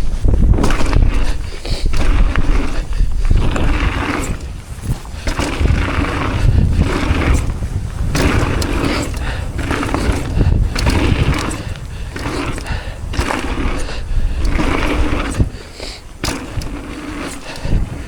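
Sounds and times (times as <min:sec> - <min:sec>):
bike rattling over bumps: 0:00.0 - 0:18.0
bike tyres rolling over dirt: 0:00.0 - 0:18.0
wind buffeting microphone: 0:00.0 - 0:18.0.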